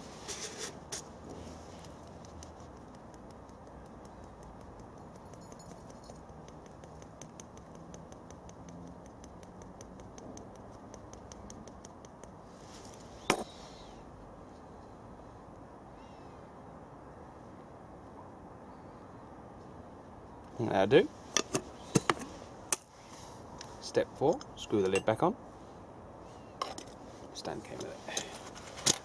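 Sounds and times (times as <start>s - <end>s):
faint rapid ticking: 1.5s - 12.4s.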